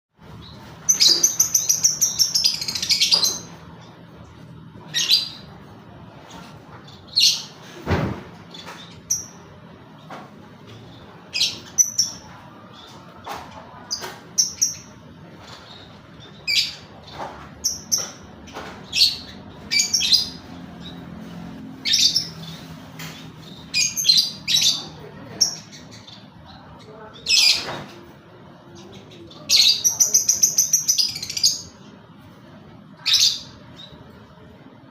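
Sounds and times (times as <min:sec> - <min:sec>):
lovebird chirping and squawking: 0:00.5 - 0:03.6, 0:04.8 - 0:05.6, 0:10.7 - 0:13.1, 0:13.8 - 0:26.4.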